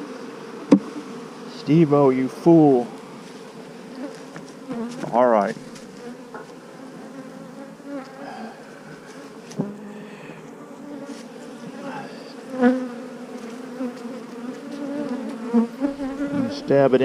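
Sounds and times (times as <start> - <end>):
bees buzzing: 0.0 - 17.0
sharp knock: 0.7 - 0.9.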